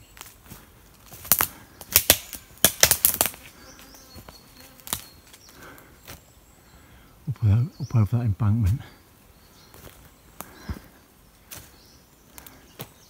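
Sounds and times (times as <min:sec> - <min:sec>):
footsteps through dry undergrowth: 0:00.0 - 0:06.5, 0:08.6 - 0:13.0
twigs snapping: 0:00.1 - 0:03.5, 0:04.2 - 0:05.5, 0:12.3 - 0:13.0.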